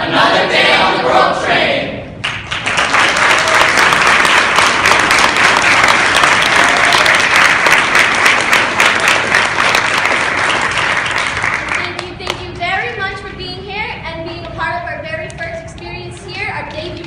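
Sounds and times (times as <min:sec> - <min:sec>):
audience applauding: 0:02.2 - 0:12.1.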